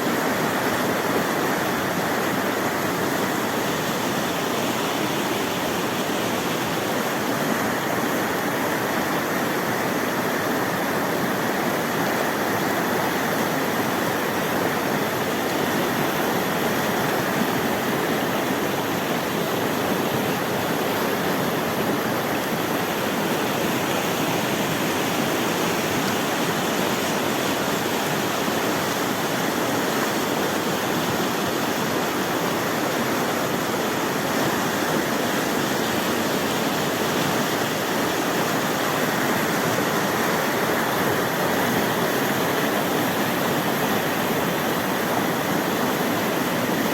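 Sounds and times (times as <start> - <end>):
river rushing over rocks: 0.0 - 46.9.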